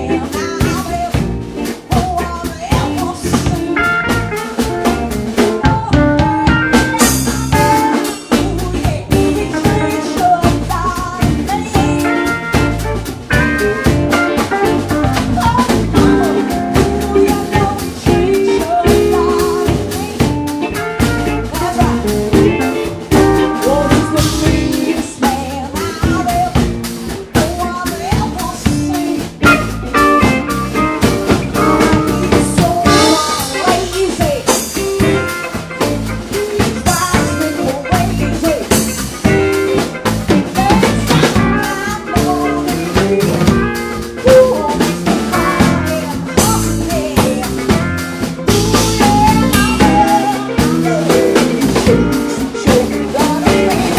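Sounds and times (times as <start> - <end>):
bass guitar: 0.0 - 53.9
drum kit with rimshots: 0.0 - 53.9
electric guitar: 0.0 - 53.9
person singing: 0.0 - 53.9.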